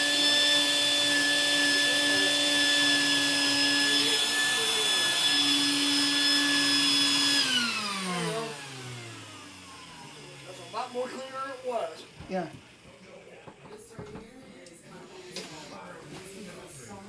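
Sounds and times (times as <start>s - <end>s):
vacuum cleaner running: 0.0s - 14.2s.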